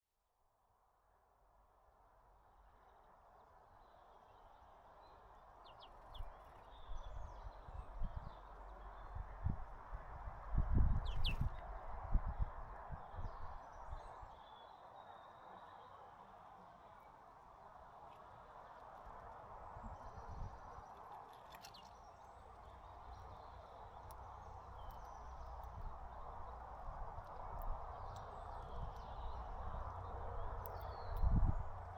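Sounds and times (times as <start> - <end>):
outdoor background noise: 0.2 - 31.9
small birds chirping: 11.0 - 11.6, 19.9 - 31.9.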